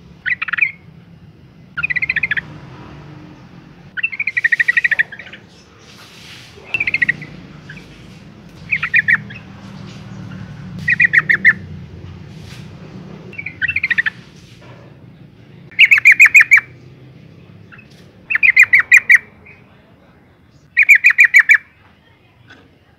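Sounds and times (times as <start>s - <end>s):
bulbul chattering calls: 0.2s - 0.9s, 1.7s - 2.6s, 3.9s - 11.8s, 13.3s - 14.5s, 15.6s - 19.9s, 20.5s - 21.8s.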